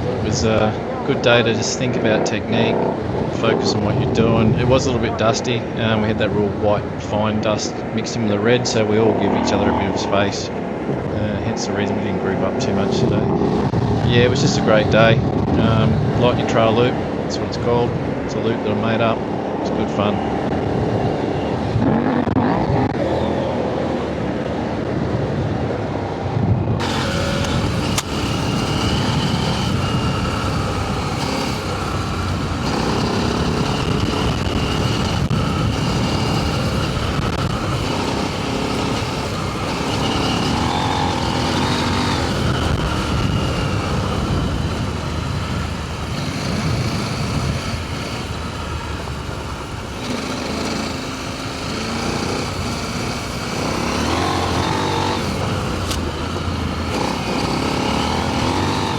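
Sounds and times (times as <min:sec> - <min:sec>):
motorcycle engine revving: 0:00.0 - 0:25.1, 0:26.8 - 0:58.9
wind noise: 0:00.0 - 0:58.9
tyre noise: 0:26.8 - 0:58.9.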